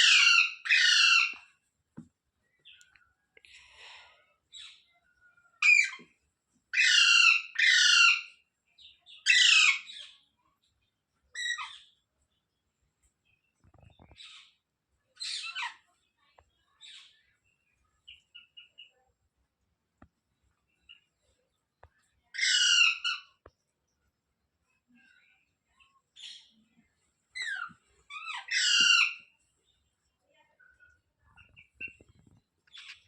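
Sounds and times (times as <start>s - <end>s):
parrot chirps: 0.0s - 1.4s, 6.7s - 8.3s, 22.4s - 23.4s, 27.4s - 29.3s
parrot screeching: 0.0s - 1.4s, 6.8s - 8.3s, 9.3s - 9.9s, 22.4s - 23.3s, 28.2s - 29.2s.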